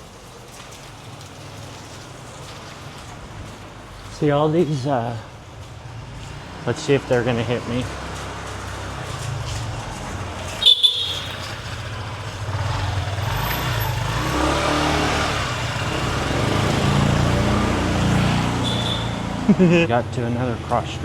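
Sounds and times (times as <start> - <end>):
motor scooters passing: 5.0 - 21.0
high horn beep: 10.6 - 11.7, 18.6 - 19.4.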